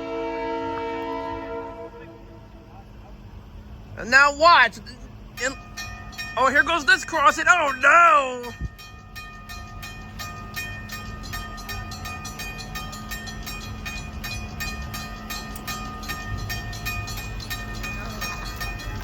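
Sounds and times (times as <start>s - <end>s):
railroad crossing bell ringing: 0.0s - 19.0s.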